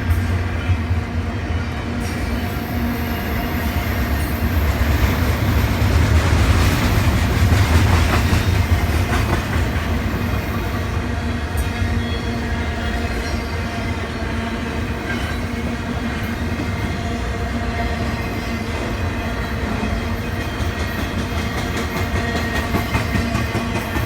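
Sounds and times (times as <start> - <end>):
freight train rumble: 0.0 - 24.0
train wheels clacking on rail joints: 3.8 - 13.6, 17.7 - 24.0.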